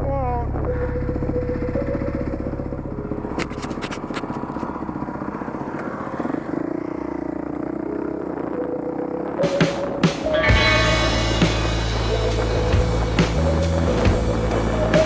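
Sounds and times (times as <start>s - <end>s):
dirt bike engine running: 0.0s - 15.0s
sharp clicks and clatter: 3.3s - 6.0s.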